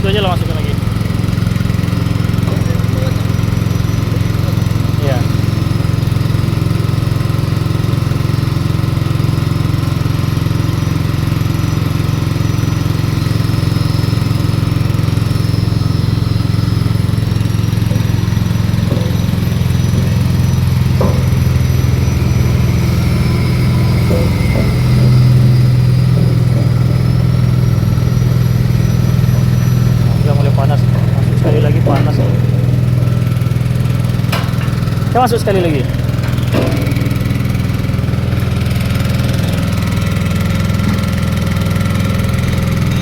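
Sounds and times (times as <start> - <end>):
small petrol engine running: 0.0 - 43.0.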